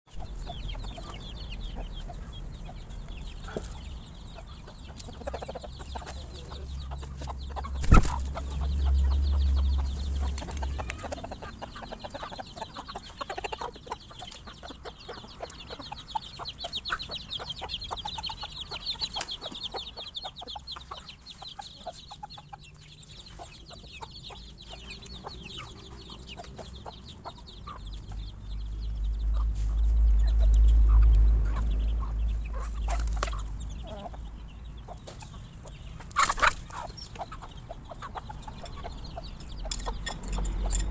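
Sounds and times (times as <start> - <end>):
chickens clucking: 0.1 - 40.9
low rumble: 28.2 - 34.6.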